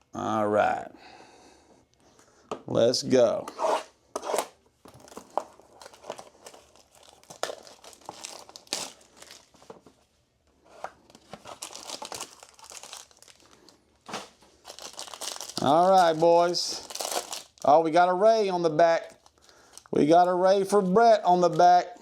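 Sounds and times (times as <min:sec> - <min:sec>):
wrapper tearing and crinkling: 0:04.4 - 0:09.7, 0:11.0 - 0:17.8, 0:19.0 - 0:20.0.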